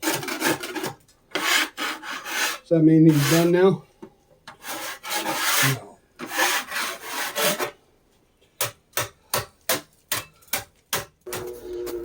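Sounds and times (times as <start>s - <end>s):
scraping across wood: 0.0s - 3.6s, 4.5s - 7.8s.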